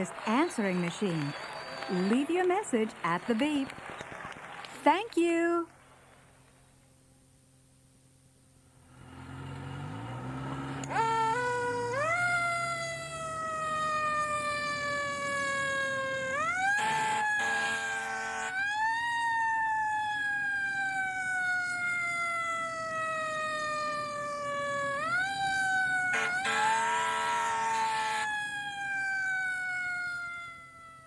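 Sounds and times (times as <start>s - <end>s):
siren blaring blast: 10.8s - 31.0s
siren wailing: 10.8s - 31.0s.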